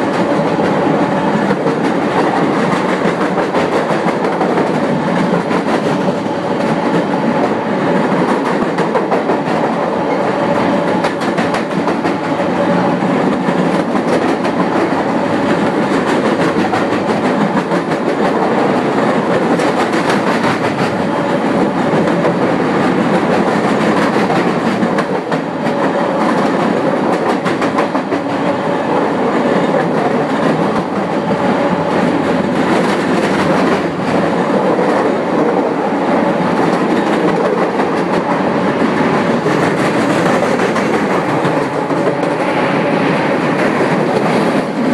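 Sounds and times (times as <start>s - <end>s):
train rumble and rattle: 0.0s - 44.9s.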